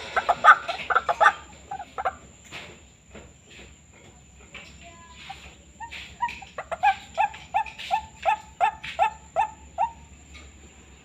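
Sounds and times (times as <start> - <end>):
bird harsh repeated calls: 0.0 - 2.3, 5.2 - 10.4.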